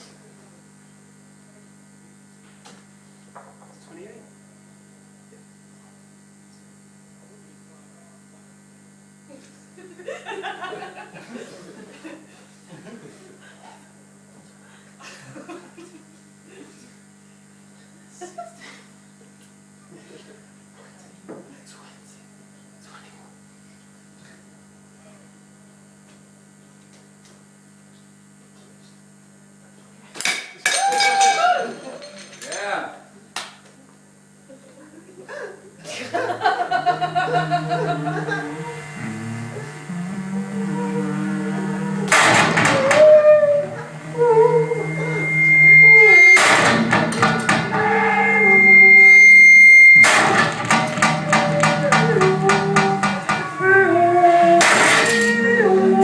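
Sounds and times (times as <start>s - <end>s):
electrical mains hum: 0.0s - 56.0s
amplifier mains hum: 35.6s - 56.0s.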